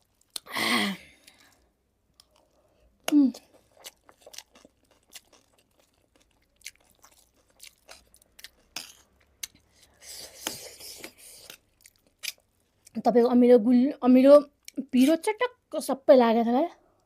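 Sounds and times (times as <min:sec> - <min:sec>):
chewing crunchy snack: 0:01.2 - 0:10.6.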